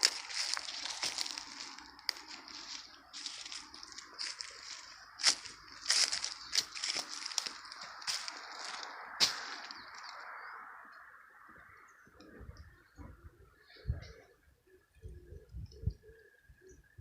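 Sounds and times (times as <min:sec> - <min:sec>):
dry crackling and crunching: 0:00.0 - 0:10.6.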